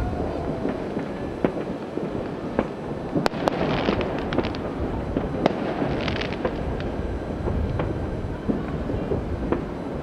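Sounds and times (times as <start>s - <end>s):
firecrackers crackling pops: 0.0s - 10.0s
steady low rumble: 0.0s - 10.0s
distant fireworks bangs: 0.1s - 10.0s.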